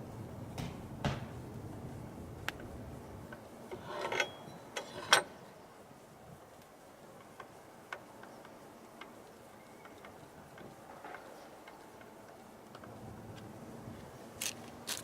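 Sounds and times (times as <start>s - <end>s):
parts scraping rattle: 3.7s - 5.4s
faint ticks: 6.5s - 13.5s.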